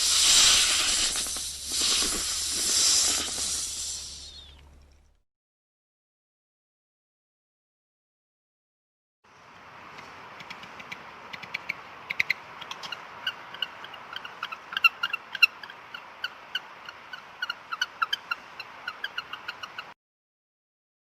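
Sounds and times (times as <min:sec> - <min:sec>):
steady hiss: 0:00.0 - 0:05.2.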